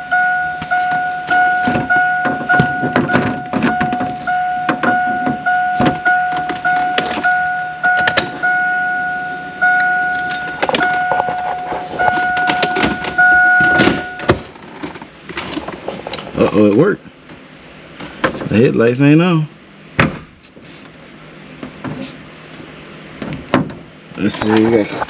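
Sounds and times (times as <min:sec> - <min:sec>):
truck warning chime beeping: 0:00.0 - 0:14.4
clicks and knocks in a cab: 0:00.6 - 0:08.6, 0:09.8 - 0:16.4, 0:23.2 - 0:25.0.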